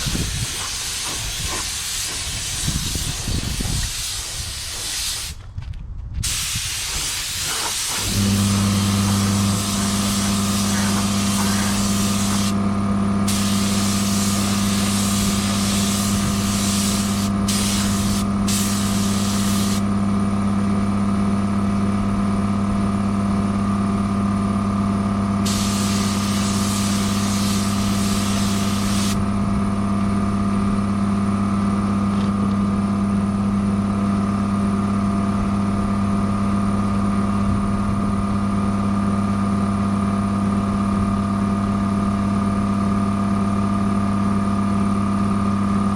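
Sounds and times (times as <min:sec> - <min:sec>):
paint spray hissing: 0:00.0 - 0:05.4, 0:06.2 - 0:12.6, 0:13.3 - 0:19.8, 0:25.5 - 0:29.2
steady machine hum: 0:06.2 - 0:45.9.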